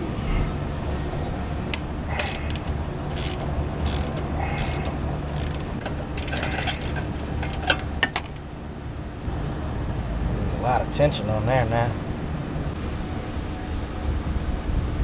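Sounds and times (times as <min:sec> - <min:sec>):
hand ratchet clicking: 0:02.1 - 0:07.9.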